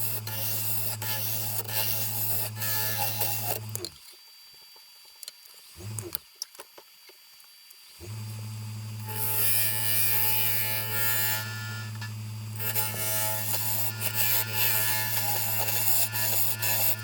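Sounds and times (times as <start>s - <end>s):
turning tool cutting wood: 0.0s - 4.0s, 9.0s - 17.0s
wood lathe humming: 9.0s - 17.0s.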